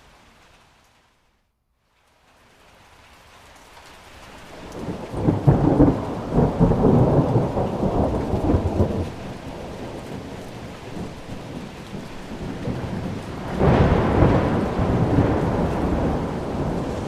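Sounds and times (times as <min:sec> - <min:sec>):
rain: 0:00.0 - 0:17.0
thunder rumbling and crackling: 0:04.5 - 0:17.0.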